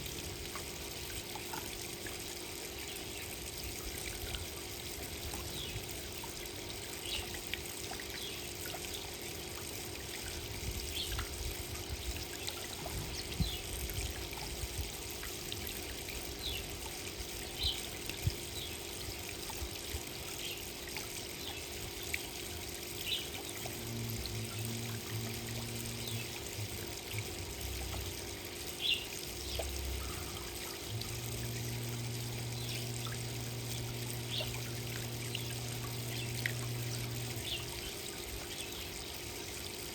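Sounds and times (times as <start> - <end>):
water trickling: 0.0 - 39.9
sharp chirps or drips: 16.1 - 39.6
low hum: 23.1 - 28.6, 29.4 - 38.5.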